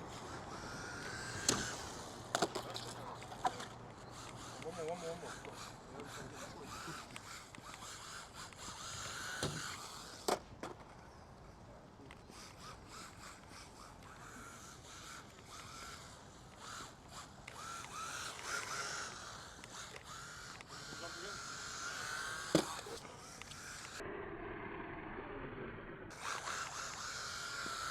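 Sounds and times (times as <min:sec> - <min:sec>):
toy car motor whining: 0:00.0 - 0:25.5, 0:26.1 - 0:27.9.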